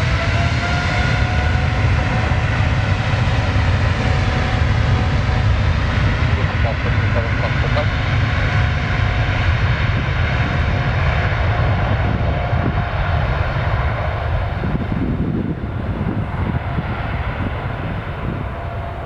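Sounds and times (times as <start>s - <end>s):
jet engines roaring at takeoff: 0.0s - 19.0s.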